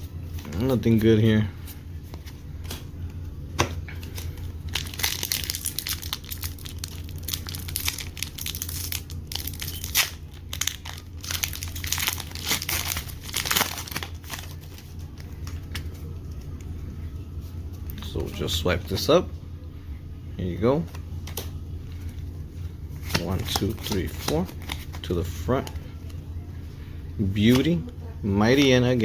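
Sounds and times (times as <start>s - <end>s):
foil wrappers crinkling and tearing: 4.0s - 16.2s, 23.0s - 25.1s.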